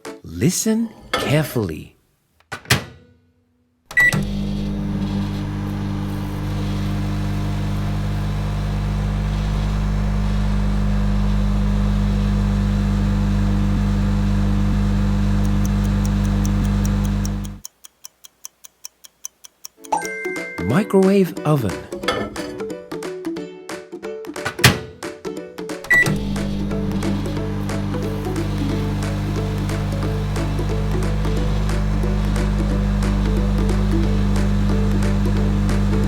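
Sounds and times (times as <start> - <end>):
microwave oven humming: 3.9 - 17.6, 25.9 - 36.0
faint ticks: 15.4 - 20.0
microwave keypad beep: 25.9 - 29.1.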